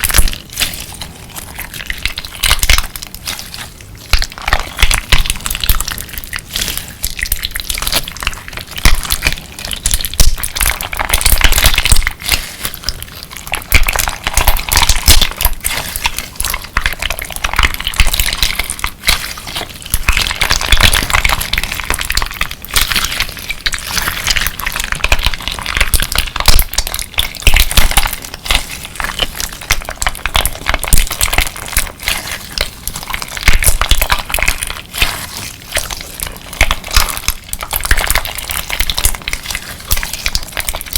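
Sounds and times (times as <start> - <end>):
crunchy slime squeezed by hand: 0.0 - 40.9.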